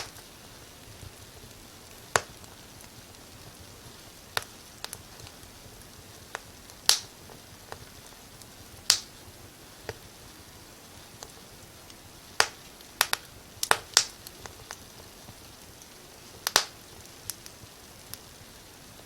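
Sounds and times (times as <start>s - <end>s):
soft steady hiss: 0.0s - 19.0s
wood fire popping: 0.0s - 19.0s.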